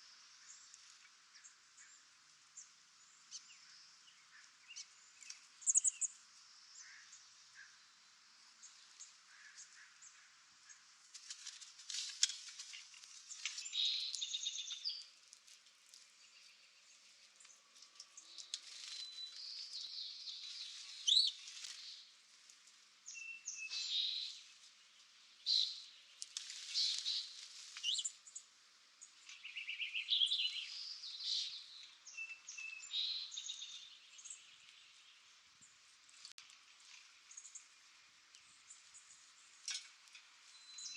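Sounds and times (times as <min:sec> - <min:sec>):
birds chirping and calling: 0:04.3 - 0:06.1, 0:18.1 - 0:22.0, 0:23.1 - 0:24.4, 0:25.5 - 0:28.4, 0:29.0 - 0:34.5.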